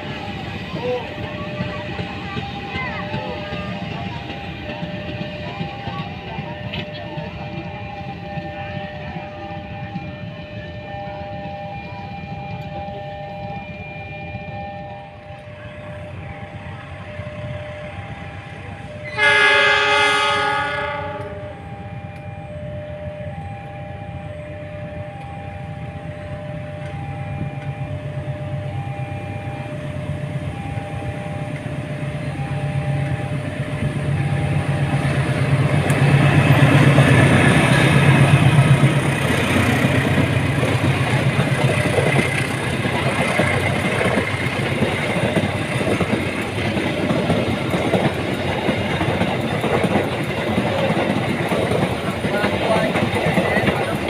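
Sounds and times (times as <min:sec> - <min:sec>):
level-crossing alarm beeping: 0:00.0 - 0:54.0
train rumble and wheel clatter: 0:00.0 - 0:54.0
train horn blast: 0:18.9 - 0:23.1.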